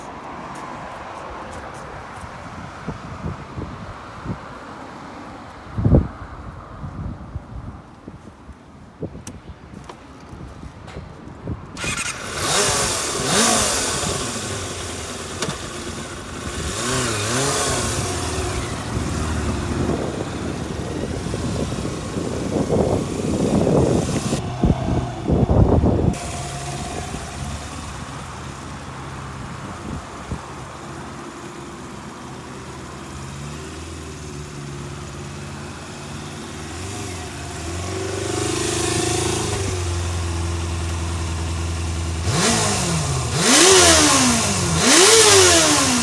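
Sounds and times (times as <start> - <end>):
motorcycle engine revving: 11.8 - 46.0.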